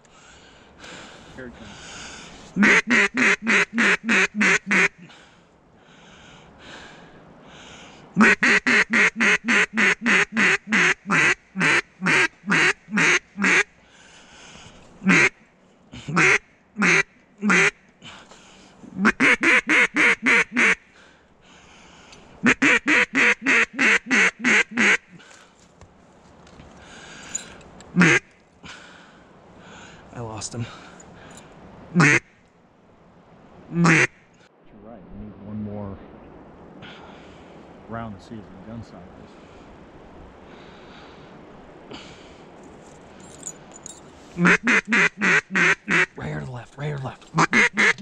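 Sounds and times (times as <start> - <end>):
duck call quacks: 2.6 - 5.0, 8.2 - 13.7, 15.0 - 15.4, 16.1 - 17.8, 19.0 - 20.8, 22.4 - 25.2, 28.0 - 28.3, 32.0 - 32.3, 33.7 - 34.2, 44.4 - 46.2, 47.4 - 48.0
faint quacks: 16.0 - 17.9, 28.0 - 28.4, 32.0 - 32.4, 33.7 - 34.2, 44.4 - 46.2, 47.4 - 48.0.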